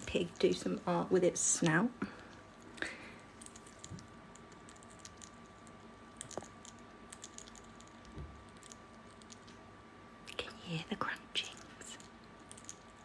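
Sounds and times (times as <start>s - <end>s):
faint hum: 0.0s - 13.0s
parrot crunching food: 2.1s - 10.4s, 11.4s - 13.0s.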